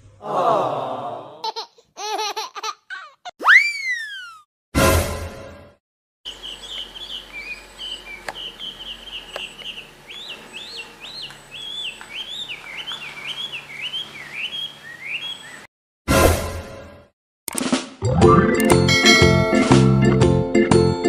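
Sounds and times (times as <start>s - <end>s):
songbird singing: 6.3s - 15.7s.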